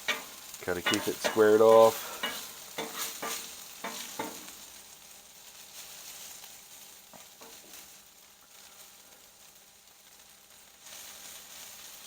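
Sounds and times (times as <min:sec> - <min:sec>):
metal spatula scraping griddle: 0:00.0 - 0:04.7
hash browns sizzling on griddle: 0:00.0 - 0:12.0.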